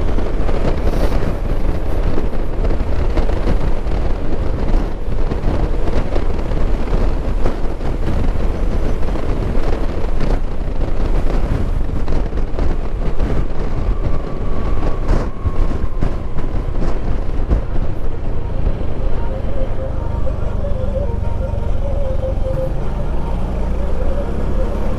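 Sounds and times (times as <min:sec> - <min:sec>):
road noise: 0:00.0 - 0:24.9
wind buffeting microphone: 0:00.0 - 0:24.9
motorcycle engine: 0:01.4 - 0:24.9.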